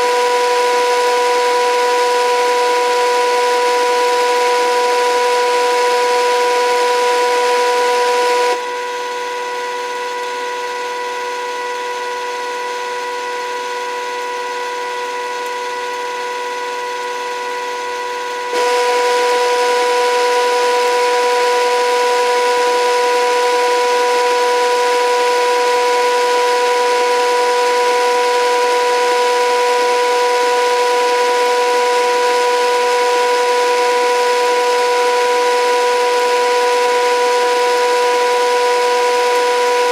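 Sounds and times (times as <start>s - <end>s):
electric motor whine: 0.0s - 8.6s, 18.5s - 39.9s.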